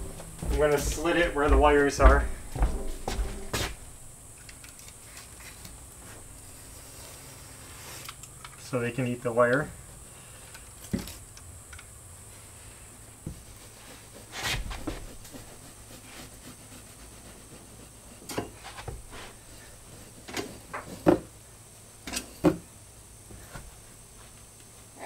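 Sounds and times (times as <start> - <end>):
insulation rustling: 0.0 - 9.5.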